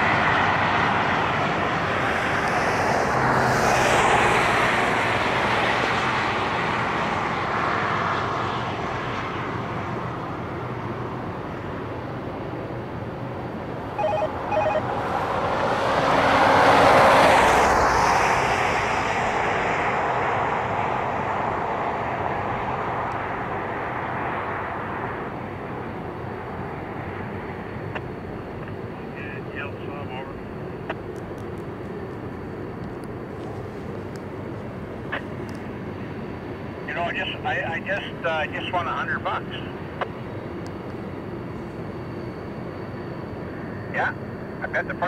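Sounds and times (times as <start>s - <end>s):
outdoor noise: 0.0s - 45.0s
short beeps: 14.0s - 14.9s.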